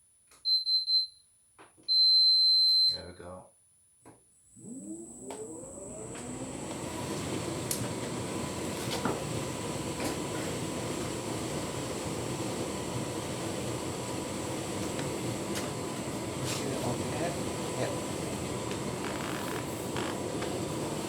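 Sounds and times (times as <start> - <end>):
tumble dryer running: 4.6 - 21.0.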